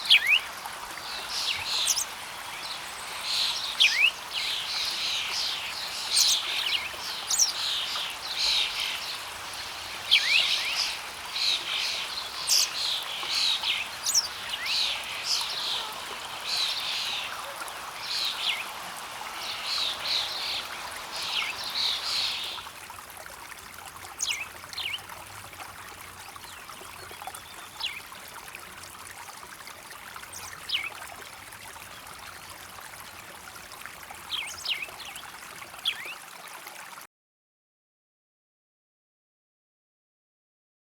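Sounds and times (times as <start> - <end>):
songbirds chirping and trilling: 0.0 - 22.7, 24.1 - 25.2, 30.2 - 31.0, 34.2 - 36.2
stream water flowing: 0.0 - 37.1.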